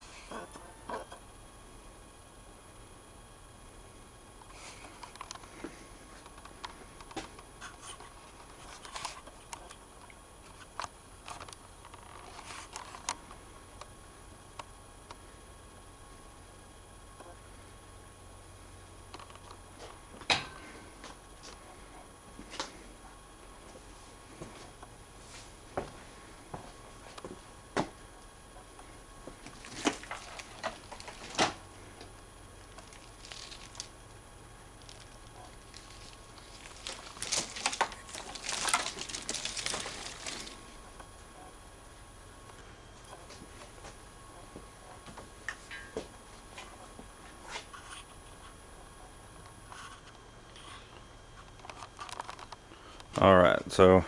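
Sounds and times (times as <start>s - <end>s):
faint steady background noise: 0.0s - 54.0s
faint steady hum: 0.0s - 54.0s.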